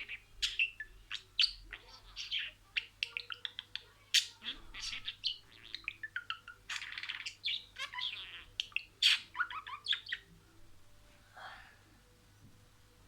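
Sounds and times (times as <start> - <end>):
budgerigar chattering: 0.0 - 10.3.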